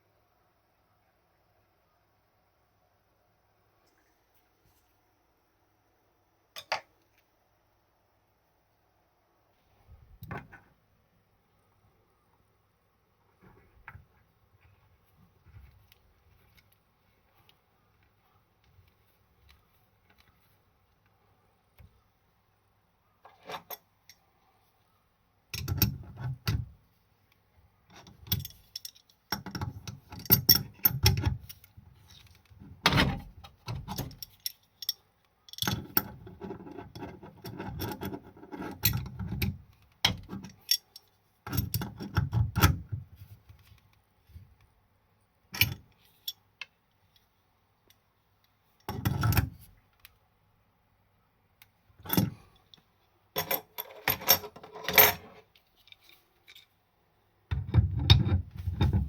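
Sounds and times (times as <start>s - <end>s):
metal parts and tools clinking: 27.9s - 42.7s, 53.4s - 56.8s.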